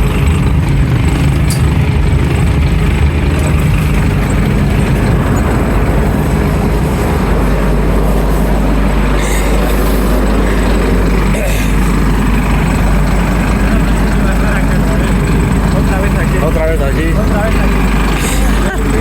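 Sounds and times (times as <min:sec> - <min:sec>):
bus engine rumbling: 0:00.0 - 0:19.0
road and body noise: 0:00.0 - 0:19.0.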